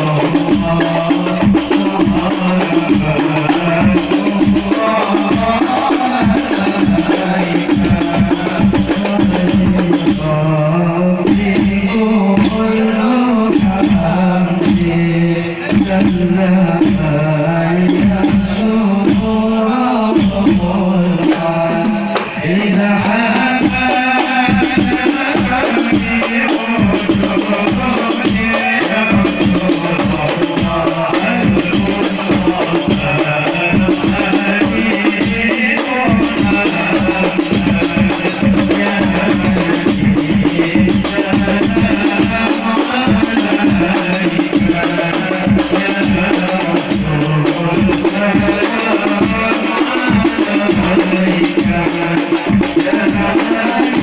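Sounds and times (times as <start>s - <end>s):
frame drums with jingles: 0.0s - 54.0s
group singing devotional melody: 0.0s - 54.0s.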